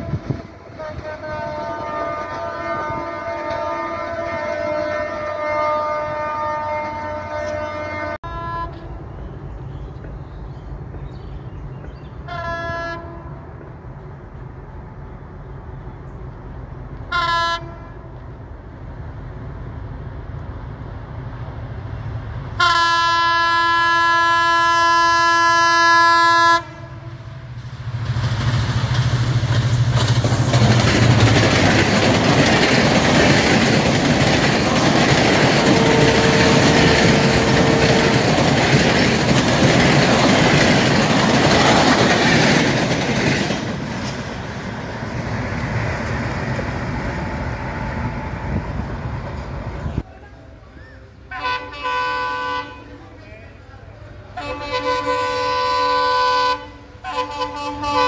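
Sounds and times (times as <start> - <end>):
locomotive horn blast: 0.0 - 9.0, 12.2 - 13.6, 17.0 - 18.4, 22.6 - 27.5, 34.5 - 39.0, 51.3 - 53.0, 54.3 - 58.0
train coaches rushing by: 0.0 - 25.9, 26.6 - 58.0
locomotive engine hum: 0.0 - 58.0
wheels clacking on rail joints: 27.8 - 48.2.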